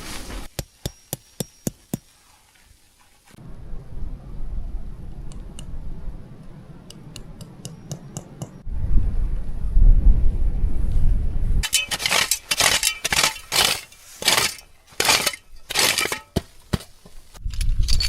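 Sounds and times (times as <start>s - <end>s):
crunching scraping in snow: 0.0s - 0.5s
low rumble: 3.4s - 7.4s, 8.6s - 11.6s.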